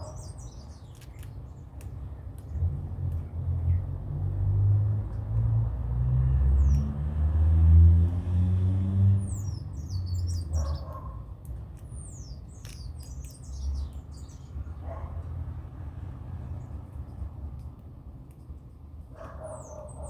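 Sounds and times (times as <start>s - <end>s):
birds chirping: 0.0s - 4.1s, 6.4s - 7.0s, 9.0s - 15.3s, 18.4s - 20.0s.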